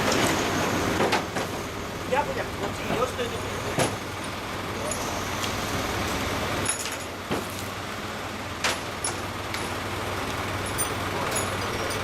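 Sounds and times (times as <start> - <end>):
knocks and clinks on wooden cart: 1.0 - 1.6, 2.7 - 5.1, 6.6 - 7.7, 8.6 - 9.8, 10.6 - 12.0.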